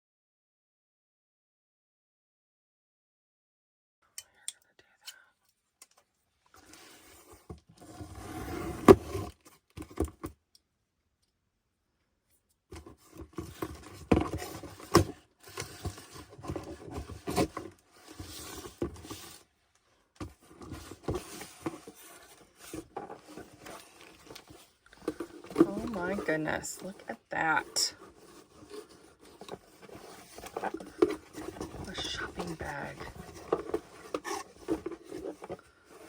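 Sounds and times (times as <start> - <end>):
box unpacking scraping and rustling: 6.6 - 10.2, 12.8 - 36.0.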